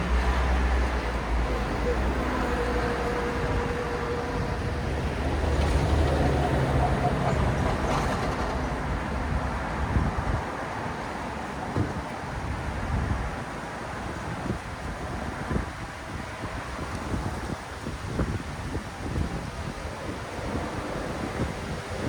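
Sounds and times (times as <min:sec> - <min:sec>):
vehicle passing close: 0:00.0 - 0:11.0
road traffic rumble: 0:00.0 - 0:22.0.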